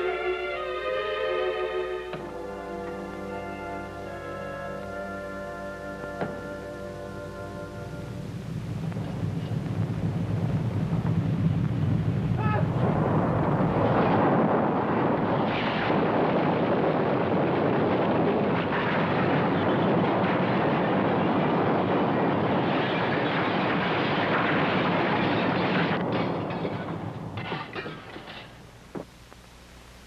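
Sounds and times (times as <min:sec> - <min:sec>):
loud rumbling roar: 0:09.9 - 0:26.6.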